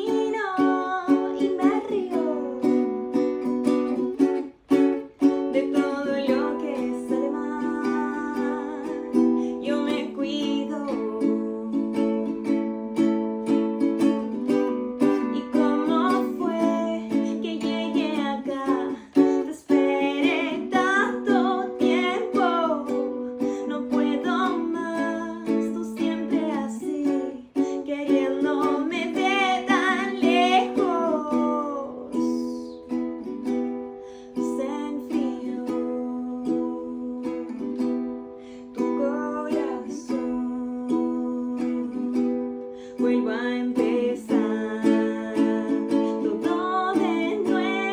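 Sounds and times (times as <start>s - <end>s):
plucked string accompaniment: 0.0s - 47.9s
woman singing: 0.0s - 47.9s.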